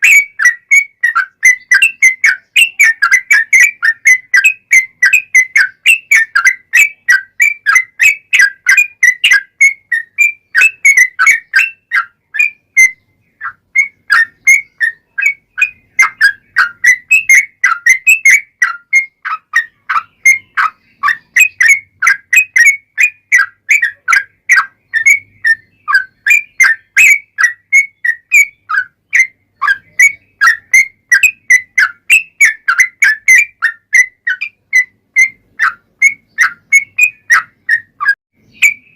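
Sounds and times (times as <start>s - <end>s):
bird chirping song: 0.0s - 38.9s.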